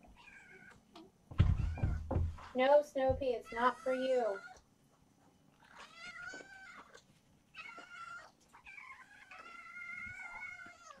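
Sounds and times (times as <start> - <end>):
kittens meowing: 5.6 - 11.0.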